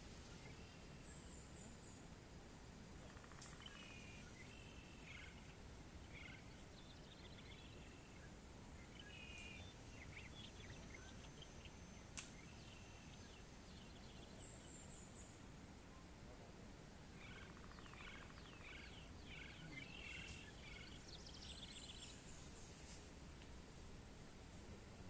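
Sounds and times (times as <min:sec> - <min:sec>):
small birds calling: 0:03.0 - 0:15.5, 0:17.1 - 0:23.0
sharp click: 0:12.1 - 0:12.4.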